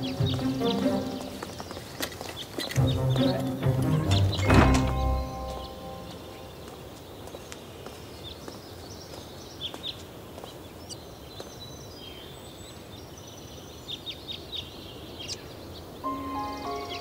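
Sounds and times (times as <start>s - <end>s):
small birds chirping: 0.0s - 17.0s
steady low hiss: 14.8s - 17.0s.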